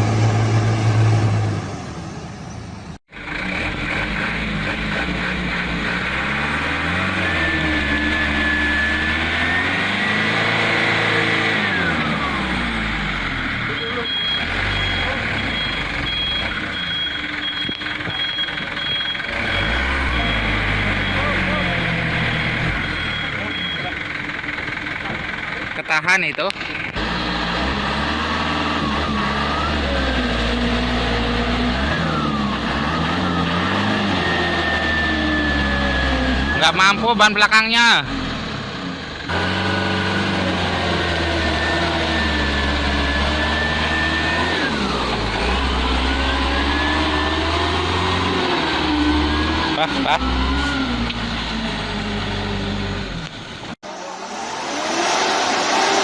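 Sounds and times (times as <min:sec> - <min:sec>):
truck engine revving: 0:00.0 - 0:56.0
high whine: 0:53.0 - 0:56.0.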